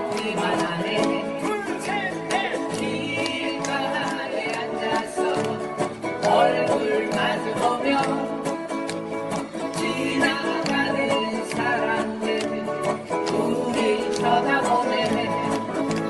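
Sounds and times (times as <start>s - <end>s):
person singing: 0.0s - 8.8s, 9.4s - 16.0s
strummed acoustic guitars: 0.0s - 16.0s.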